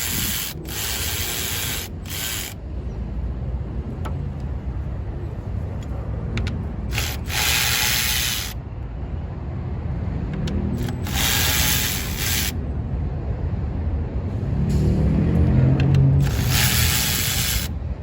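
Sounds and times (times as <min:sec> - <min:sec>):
loud hissing bursts: 0:00.0 - 0:02.6, 0:06.9 - 0:08.6, 0:11.0 - 0:12.6, 0:16.2 - 0:17.7.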